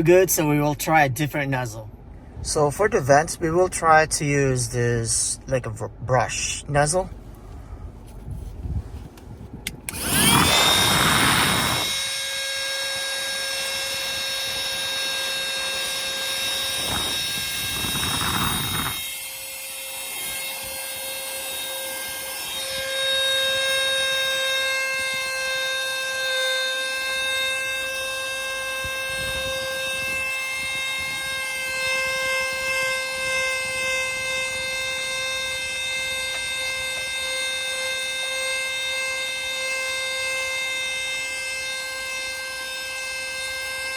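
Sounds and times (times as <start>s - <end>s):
handheld vacuum cleaner whining: 9.8s - 43.9s.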